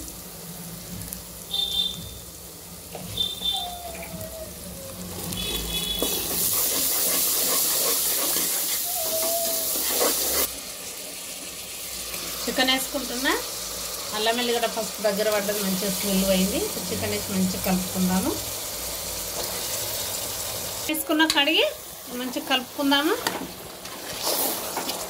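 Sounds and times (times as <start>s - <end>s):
onions sizzling in hot oil: 0.0s - 25.0s.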